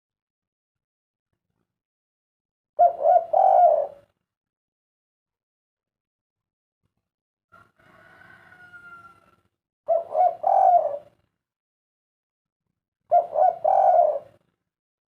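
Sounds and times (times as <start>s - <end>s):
dove cooing: 2.8s - 4.1s, 9.9s - 11.3s, 13.1s - 14.5s.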